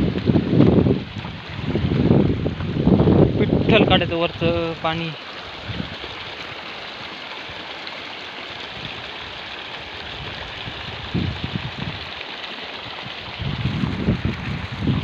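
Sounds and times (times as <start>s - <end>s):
wind buffeting microphone: 0.0s - 4.9s, 5.5s - 6.4s, 8.7s - 9.4s, 10.0s - 12.2s, 12.8s - 15.0s
rushing waterfall: 0.0s - 15.0s.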